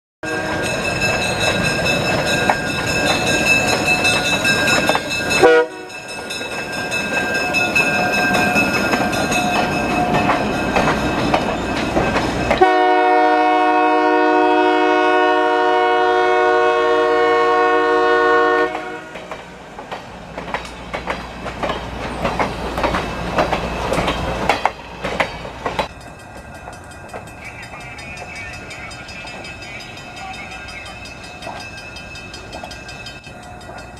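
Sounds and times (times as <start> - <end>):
locomotive horn blast: 0.2 - 0.7, 5.4 - 6.0, 12.6 - 19.3
train running on rails: 0.2 - 33.9
wheels clicking over rail joints: 0.4 - 12.8, 18.7 - 33.9.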